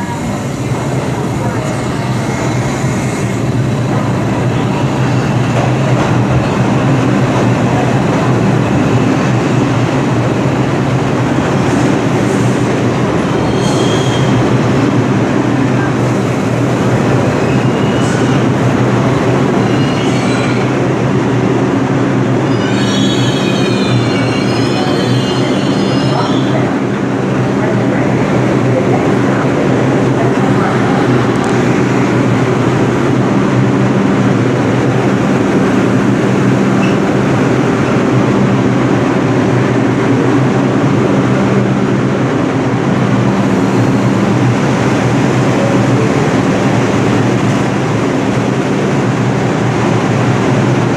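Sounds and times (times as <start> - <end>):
subway train rumbling: 0.0 - 50.9
steel wheels squealing on rails: 11.6 - 14.6, 17.0 - 20.9, 22.4 - 26.9.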